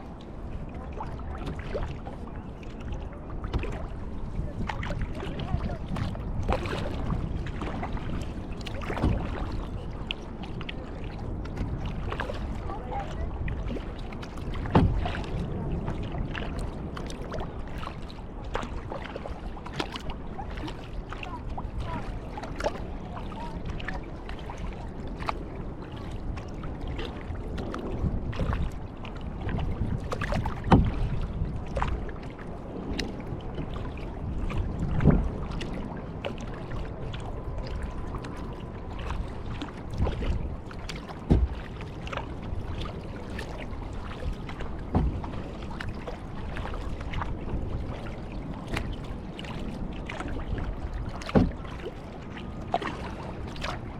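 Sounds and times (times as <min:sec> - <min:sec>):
paddle splashing and dripping: 0:00.0 - 0:53.9.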